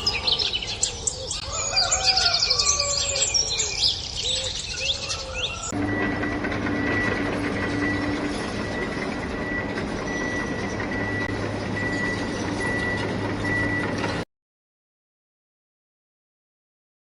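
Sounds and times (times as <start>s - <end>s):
truck engine: 5.6s - 14.3s
reversing beeper: 5.7s - 14.2s.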